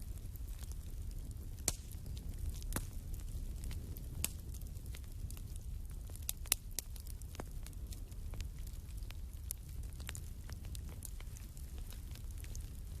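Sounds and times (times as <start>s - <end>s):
fire crackles and pops: 0.0s - 13.0s
fire rumbling in fireplace: 0.0s - 13.0s.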